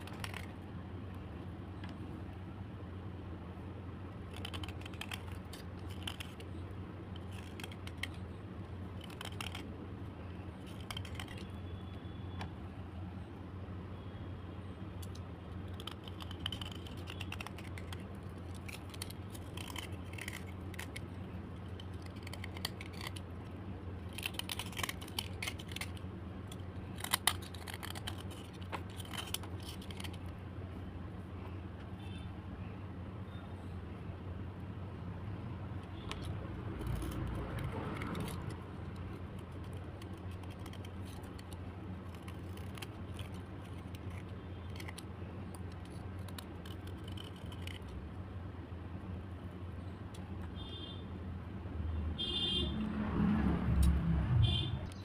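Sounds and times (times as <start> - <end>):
slate pencils clicking and scraping: 0.0 - 0.6, 4.2 - 11.6, 15.0 - 30.4, 35.8 - 48.0
steady low hum: 0.0 - 55.0.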